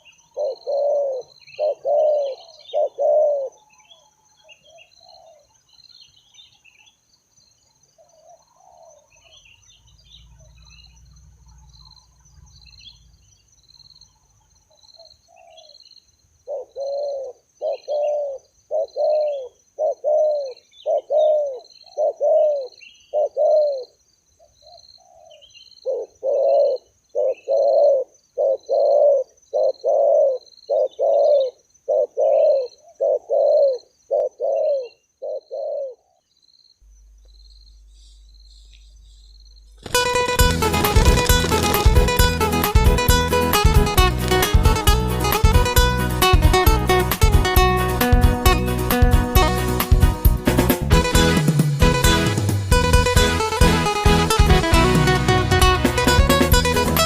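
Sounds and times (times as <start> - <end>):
doves cooing: 0.0 - 3.8, 16.5 - 24.0, 25.0 - 36.2, 39.8 - 45.9
small bird chirps: 0.0 - 42.2.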